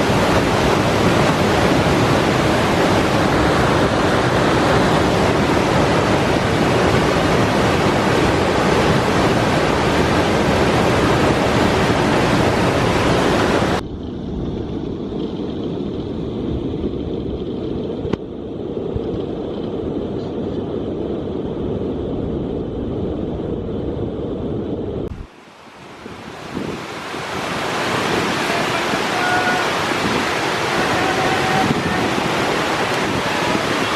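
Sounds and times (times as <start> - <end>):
rushing whitewater: 0.0 - 13.8, 25.1 - 33.9.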